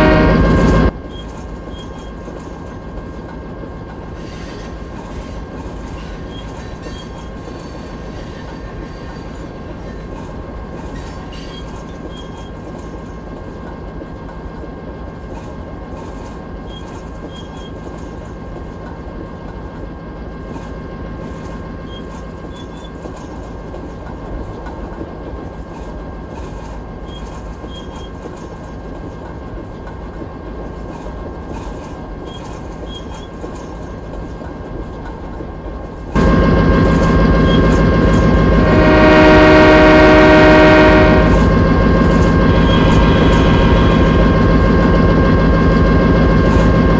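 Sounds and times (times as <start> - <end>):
train rumbling on rails: 0.0 - 46.9
high-pitched whine: 36.2 - 46.9.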